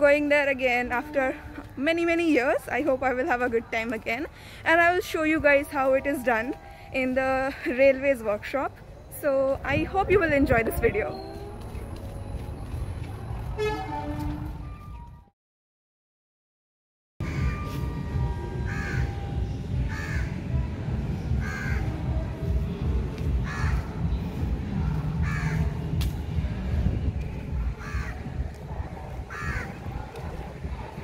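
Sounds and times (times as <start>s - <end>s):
steady low rumble: 8.7s - 13.6s, 17.9s - 31.0s.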